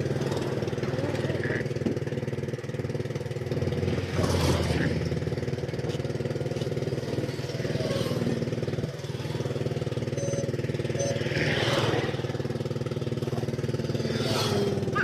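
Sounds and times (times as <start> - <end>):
engine running steadily: 0.0 - 15.0
faint short high beeps: 10.1 - 11.2.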